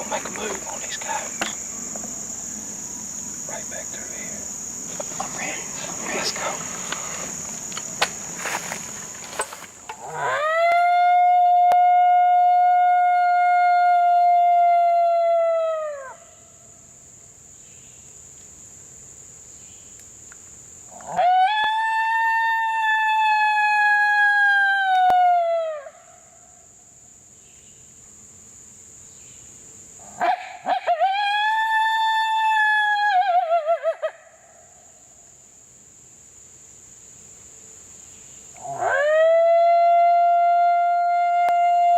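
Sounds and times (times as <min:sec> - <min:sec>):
crickets trilling: 0:00.0 - 0:41.9
rustling and clicks: 0:04.9 - 0:10.0
coyote howls on howler call: 0:10.0 - 0:16.6, 0:20.9 - 0:26.2, 0:30.0 - 0:34.7, 0:38.6 - 0:41.9.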